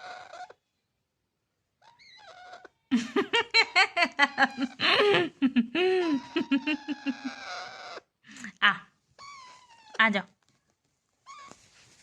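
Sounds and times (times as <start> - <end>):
person laughing: 2.9 - 7.4.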